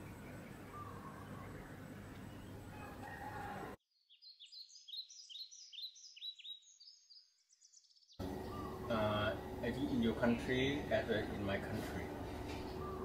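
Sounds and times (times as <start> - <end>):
outdoor background hiss: 0.0 - 3.7, 8.2 - 13.0
high-pitched bird chirps: 4.0 - 9.0.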